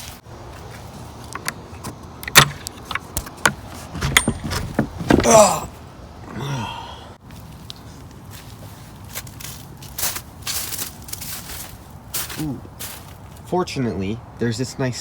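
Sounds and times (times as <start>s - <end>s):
clicks and knocks: 1.3s - 5.4s.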